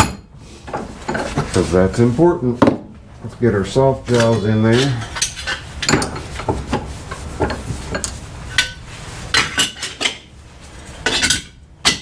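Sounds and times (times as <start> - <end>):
metal clinking and knocking: 4.2 - 6.8, 11.0 - 12.0.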